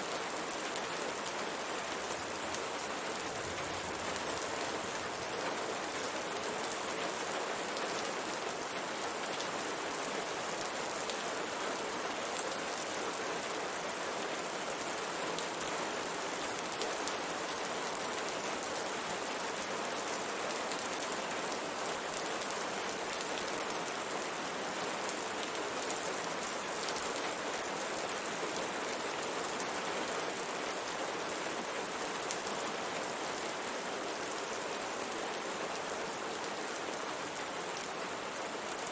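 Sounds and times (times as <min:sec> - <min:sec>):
rain on a window pane: 0:00.1 - 0:38.9.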